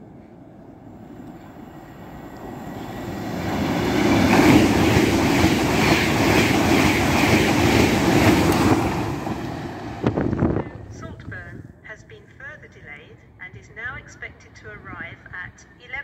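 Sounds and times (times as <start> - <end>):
high-speed train passing: 0.0 - 16.0.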